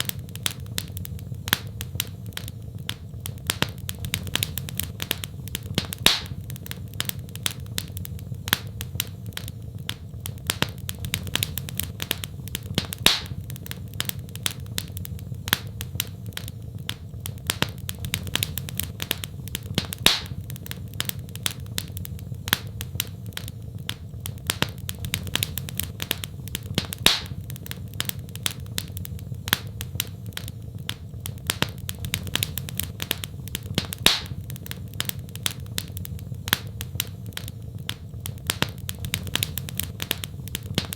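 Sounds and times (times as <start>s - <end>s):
loud fire pops: 0.0s - 40.9s
low rumble of fire: 0.0s - 40.9s
wood fire crackling: 0.0s - 40.9s.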